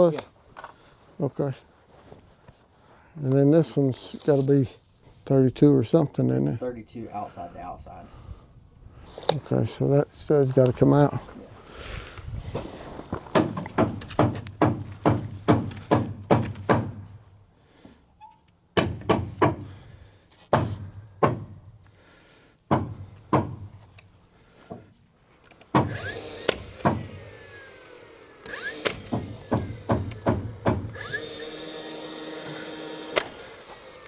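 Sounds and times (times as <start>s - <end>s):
hammer blows on wooden stud: 13.3s - 17.2s, 18.8s - 19.9s, 20.5s - 21.8s, 22.7s - 23.9s, 25.7s - 27.4s, 28.4s - 31.6s
power tool whining: 25.4s - 34.0s.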